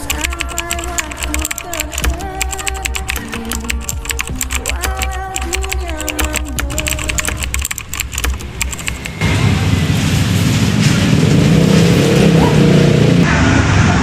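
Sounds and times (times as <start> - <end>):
keyboard typing clicks: 0.0 - 9.2
steady rushing noise: 7.4 - 14.0.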